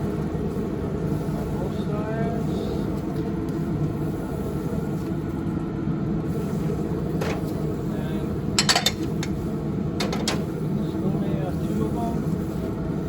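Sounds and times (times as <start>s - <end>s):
pellet grill low rumble: 0.0s - 13.0s
sharp clicks and clinks: 8.6s - 9.4s.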